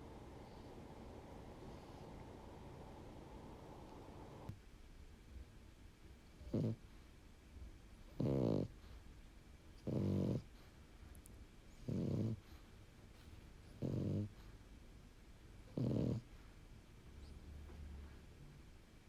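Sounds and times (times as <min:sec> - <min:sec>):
dog snoring: 0:00.3 - 0:04.4, 0:06.3 - 0:06.8, 0:08.1 - 0:09.0, 0:09.8 - 0:10.7, 0:11.8 - 0:12.6, 0:13.7 - 0:14.5, 0:15.7 - 0:16.3.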